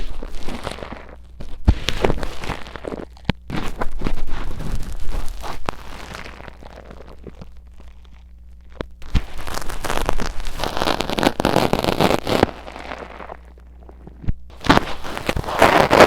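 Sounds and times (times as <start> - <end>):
tweezers scratching a microphone: 14.6 - 16.0.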